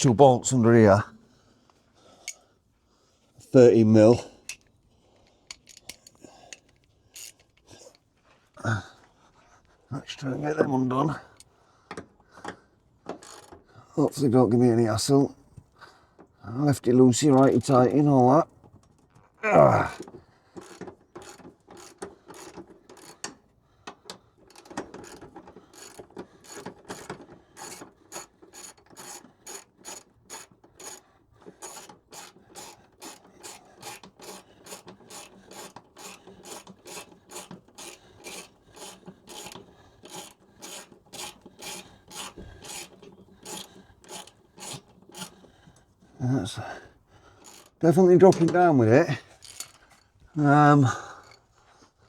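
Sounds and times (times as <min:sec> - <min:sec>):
socket ratchet clicking: 0:31.6 - 0:45.5.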